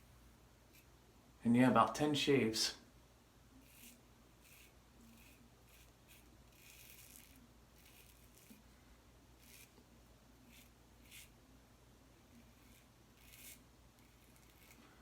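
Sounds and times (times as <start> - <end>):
razor scraping stubble: 3.6 - 8.6, 9.4 - 9.8, 10.4 - 11.4, 12.3 - 15.0.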